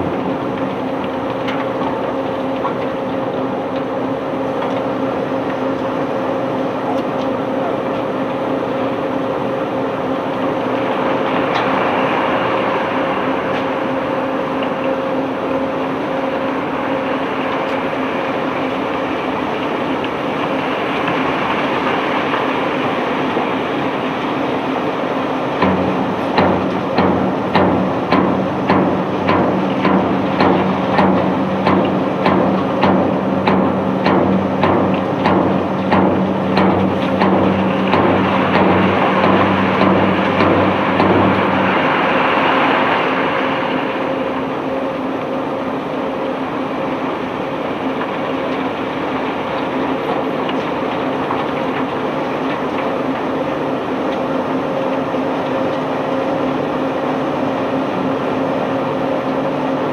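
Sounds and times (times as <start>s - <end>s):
low mechanical hum: 0.0s - 59.9s
machinery knocking rhythmically: 25.6s - 41.9s
rushing noise: 36.2s - 45.0s.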